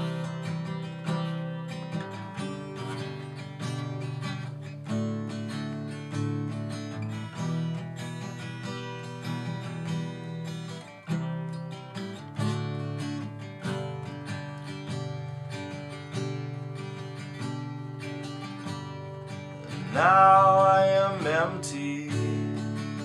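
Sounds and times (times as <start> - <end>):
acoustic guitar strumming: 0.0 - 23.0
person singing: 19.6 - 23.0.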